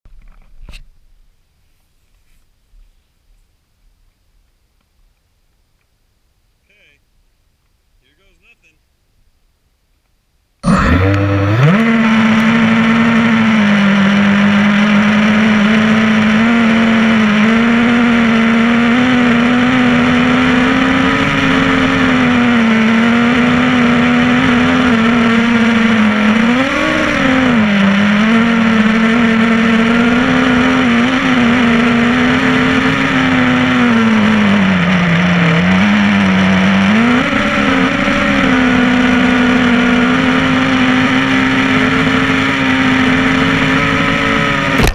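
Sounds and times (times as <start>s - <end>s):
drone motors whining: 10.6s - 44.9s.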